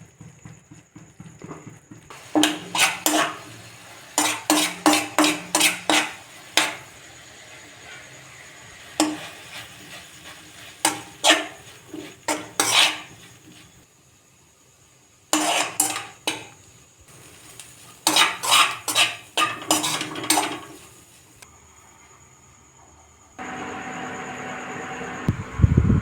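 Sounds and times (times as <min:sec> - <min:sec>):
metal utensil scraping a pan: 0:02.1 - 0:13.8, 0:15.3 - 0:21.2.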